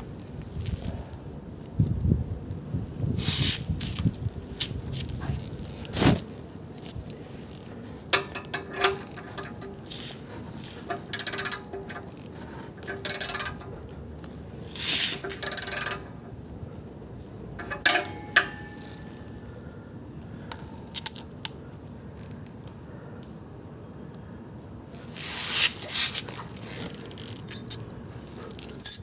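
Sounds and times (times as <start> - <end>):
rapid ratchet clicking: 10.9 - 12.2, 12.8 - 13.7, 14.8 - 16.1
metal clinks: 27.3 - 28.0, 28.6 - 29.0.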